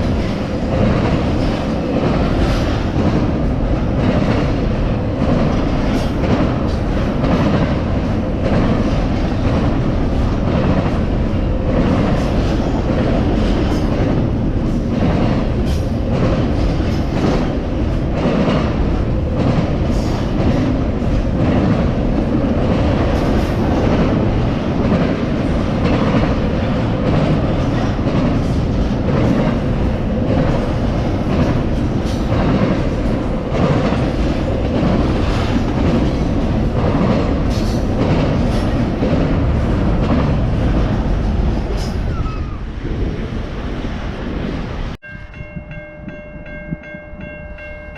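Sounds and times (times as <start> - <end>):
wheels clacking over rail joints: 0.0 - 42.2
train wheels rumbling on rail: 0.0 - 47.9.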